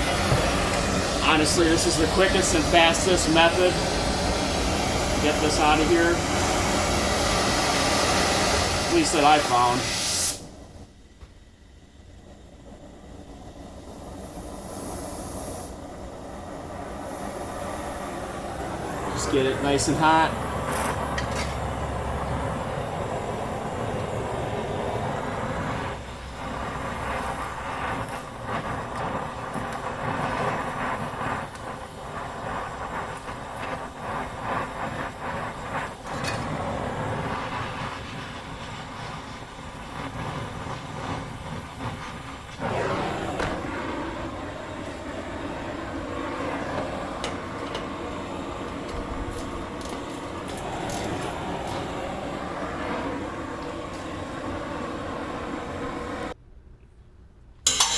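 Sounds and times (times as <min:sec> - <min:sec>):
gas torch flame rushing: 0:00.0 - 0:56.4, 0:57.6 - 0:57.9
crackles: 0:12.4 - 0:23.0, 0:25.0 - 0:55.3.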